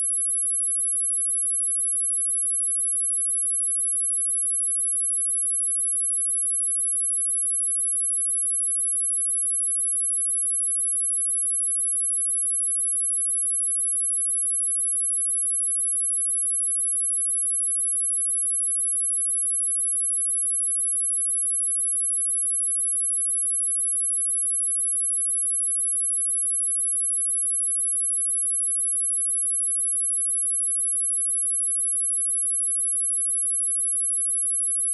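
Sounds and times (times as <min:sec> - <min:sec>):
high-pitched sine-wave test tone: 0:12.0 - 0:34.9.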